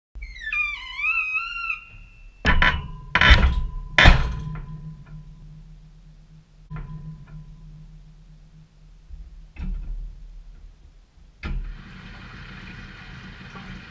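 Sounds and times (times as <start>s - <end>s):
low steady hum: 1.7s - 11.4s
heavy knocks inside dishwasher: 2.5s - 4.8s.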